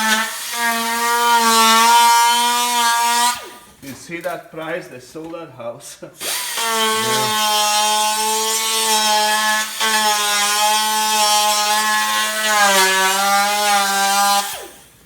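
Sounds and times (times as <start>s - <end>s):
electric power tool running: 6.2s - 12.6s.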